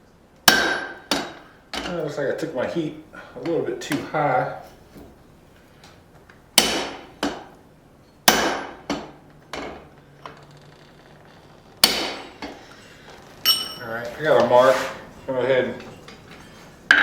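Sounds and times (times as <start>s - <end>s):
hammer striking steel on anvil: 0.5s - 1.9s, 6.6s - 7.5s, 8.2s - 9.9s, 11.8s - 12.6s, 13.5s - 13.9s.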